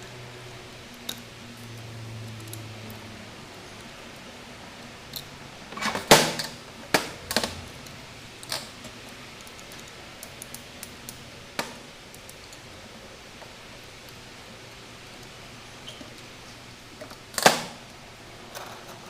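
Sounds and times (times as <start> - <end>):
hard objects clicking and knocking: 5.2 - 12.7.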